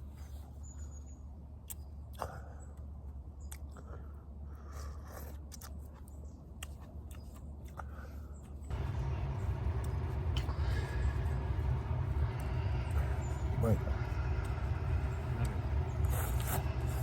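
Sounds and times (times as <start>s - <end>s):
person chewing food: 3.5s - 8.8s, 14.0s - 17.0s
steady low hum: 7.9s - 17.0s
loud steady noise: 8.7s - 17.0s.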